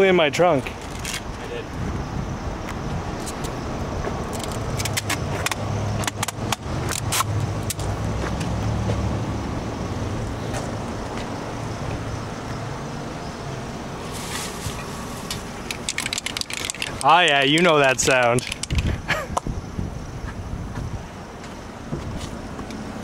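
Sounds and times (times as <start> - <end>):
vehicle engine humming: 0.0 - 23.0
sharp clicks and knocks: 4.3 - 8.5, 15.3 - 19.5.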